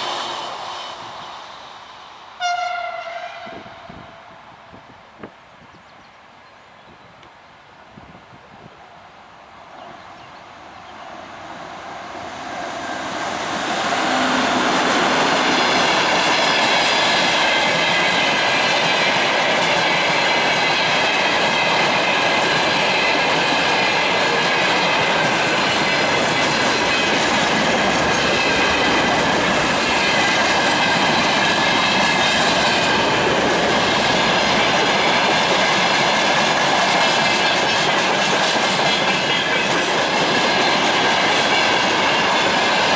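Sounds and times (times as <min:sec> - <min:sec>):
diesel locomotive passing: 0:00.0 - 0:05.0, 0:08.8 - 0:42.9
wheels clickety-clack over rail joints: 0:13.0 - 0:42.9.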